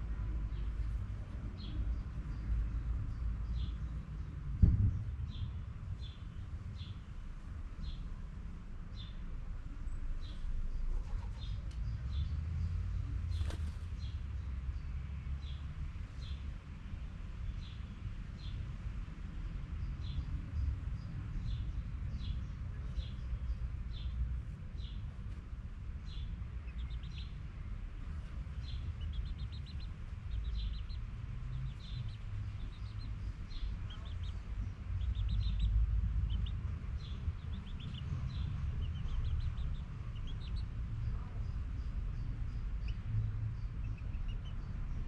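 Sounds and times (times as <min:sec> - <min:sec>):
steady low rumble: 0:24.4 - 0:45.0
birds chirping and trilling: 0:26.0 - 0:45.0.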